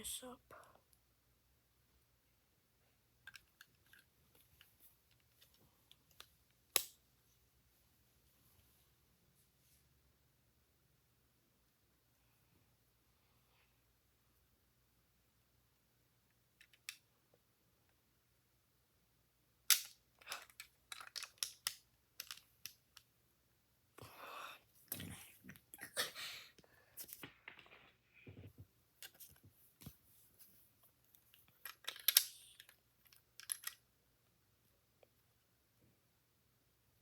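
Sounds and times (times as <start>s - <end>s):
plastic bricks clicking together: 3.2s - 4.1s, 19.7s - 23.1s, 31.6s - 33.8s.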